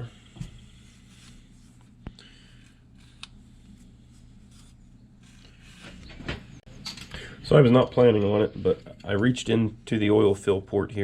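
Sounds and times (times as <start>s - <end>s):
light rubbing handling noise: 0.0s - 6.7s
steady low hum: 0.0s - 11.0s.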